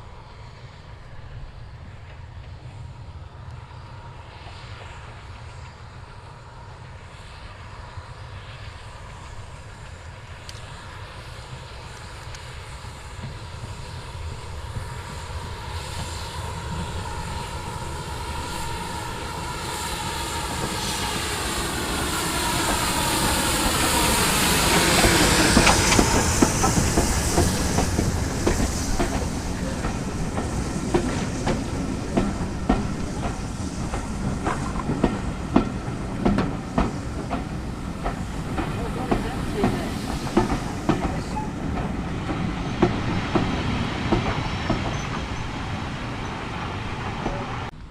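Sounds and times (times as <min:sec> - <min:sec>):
train passing at speed: 0:00.0 - 0:47.9
wheels clattering over rail joints: 0:23.5 - 0:46.4.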